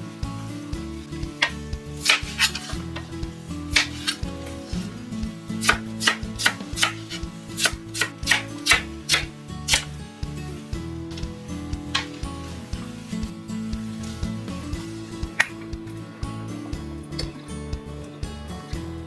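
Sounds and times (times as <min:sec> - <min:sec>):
soft background music: 0:00.0 - 0:19.0
knife chopping on cutting board: 0:01.4 - 0:03.0, 0:03.7 - 0:04.2, 0:05.6 - 0:10.0.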